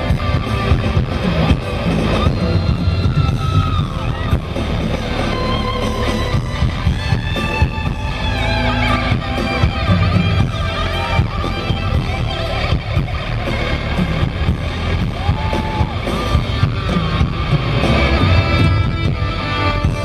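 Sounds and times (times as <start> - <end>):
booming bass: 0.0 - 20.0
guitar: 0.0 - 20.0
live concert music over loudspeakers: 0.0 - 20.0.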